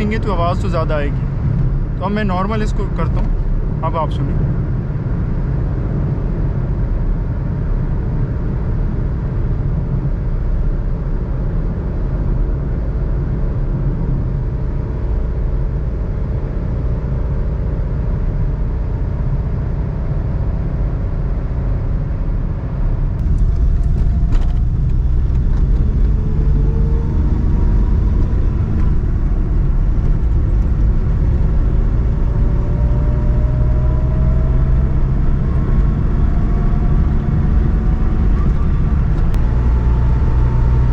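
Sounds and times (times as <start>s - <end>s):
car engine and tyre rumble: 0.0s - 40.9s
rising engine tone: 21.7s - 40.9s.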